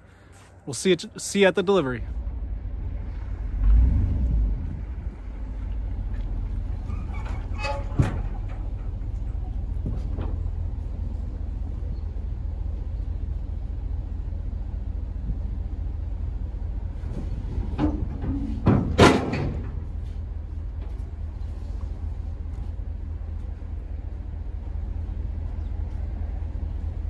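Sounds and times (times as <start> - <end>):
truck engine and road rumble: 0.0 - 27.0
sharp clunks: 7.2 - 10.4, 17.1 - 20.0.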